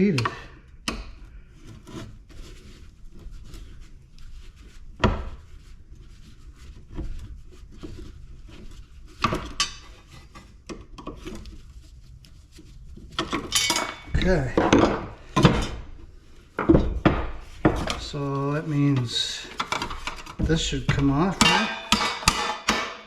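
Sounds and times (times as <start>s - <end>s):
metal parts knocking and clinking: 13.2s - 15.8s, 19.0s - 23.0s.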